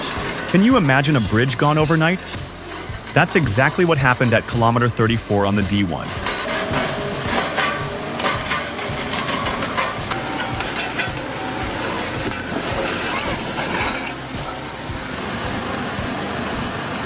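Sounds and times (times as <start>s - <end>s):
heavy machinery engine: 5.8s - 17.0s.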